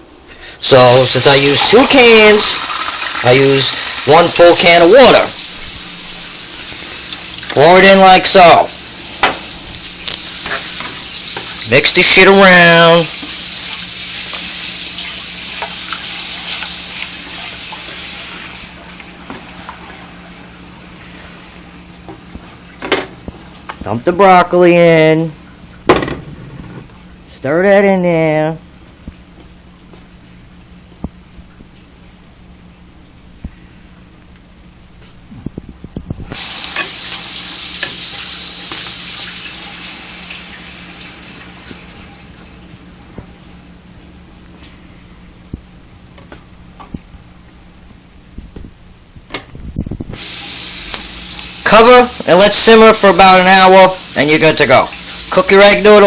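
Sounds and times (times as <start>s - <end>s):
sizzling hiss: 0.2s - 18.9s, 36.2s - 42.2s, 50.1s - 56.0s.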